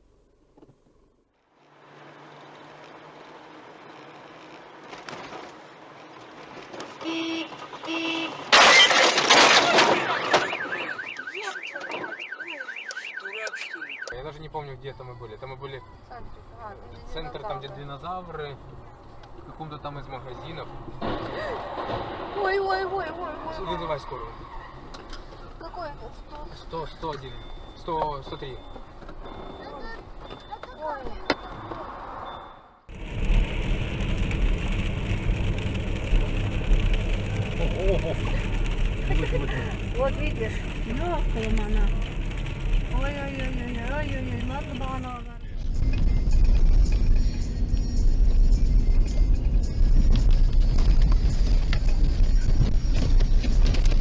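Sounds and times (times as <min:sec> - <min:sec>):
car engine and road noise: 0:00.0 - 0:54.0
car horn honks: 0:07.0 - 0:08.9
loud collision crash: 0:08.4 - 0:10.8, 0:21.0 - 0:22.9
car alarm wailing: 0:09.6 - 0:15.2, 0:26.7 - 0:32.8.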